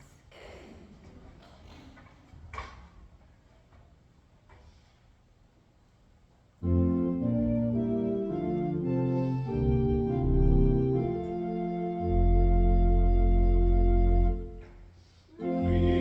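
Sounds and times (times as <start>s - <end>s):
organ playing held chords: 6.6s - 14.6s, 15.4s - 16.0s.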